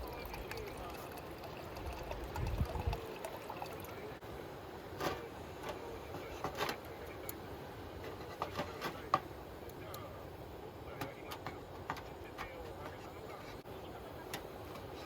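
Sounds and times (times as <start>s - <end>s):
water trickling: 0.0s - 4.2s.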